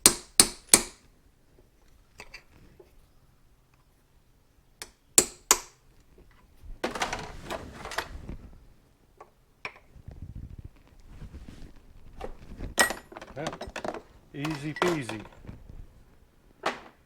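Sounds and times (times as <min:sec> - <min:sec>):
hammer striking chisel: 0:00.0 - 0:01.0, 0:04.8 - 0:05.8.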